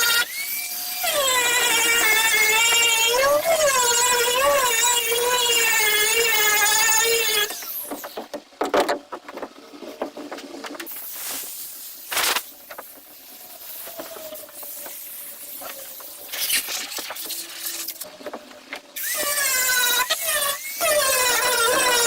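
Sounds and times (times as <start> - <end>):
power grinder on fiberglass: 0.0 - 8.1, 10.9 - 18.1, 18.9 - 22.0
knocks and handling noises: 7.9 - 11.1.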